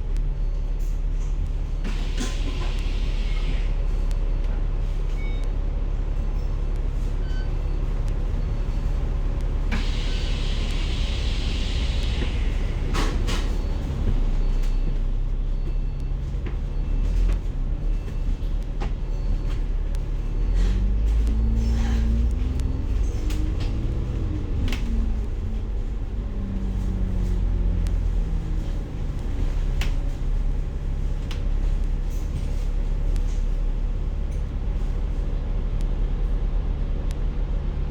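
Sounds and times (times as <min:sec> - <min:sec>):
bus engine rumble: 0:00.0 - 0:37.9
hiss: 0:09.7 - 0:13.2.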